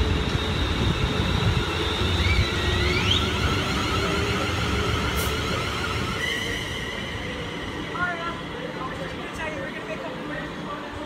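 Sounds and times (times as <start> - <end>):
train motor whine: 0.0 - 9.2
electric train pulling away: 0.0 - 11.0.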